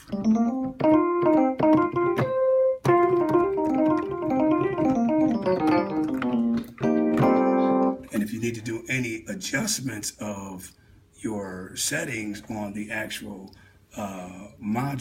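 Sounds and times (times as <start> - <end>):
electric piano melody: 0.0 - 8.2.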